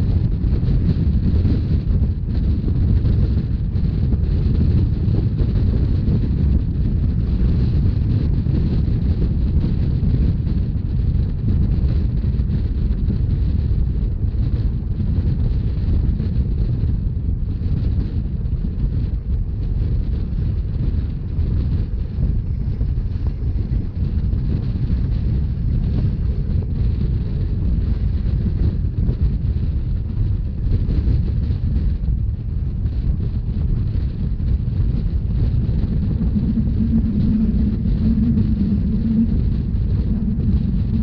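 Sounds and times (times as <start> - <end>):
wind buffeting microphone: 0.0 - 41.0
train rumbling: 16.5 - 41.0.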